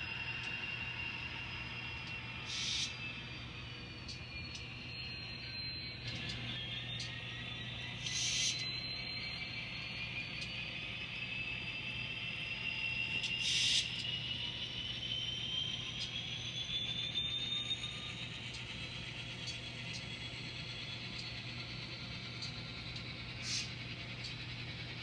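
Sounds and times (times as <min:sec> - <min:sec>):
model train motor whining: 0:00.0 - 0:25.0.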